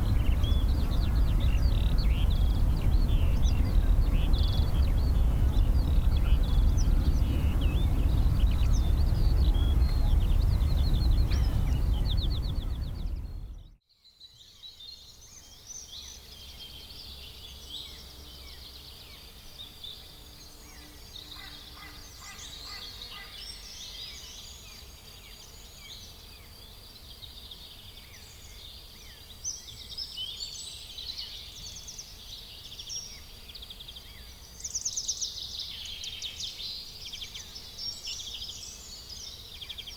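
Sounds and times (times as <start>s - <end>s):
loud low rumble: 0.0s - 13.8s
small birds chirping: 0.0s - 39.9s.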